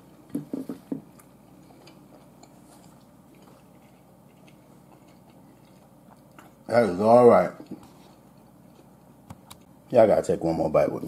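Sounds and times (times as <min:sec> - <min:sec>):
person chewing food: 0:00.1 - 0:09.7.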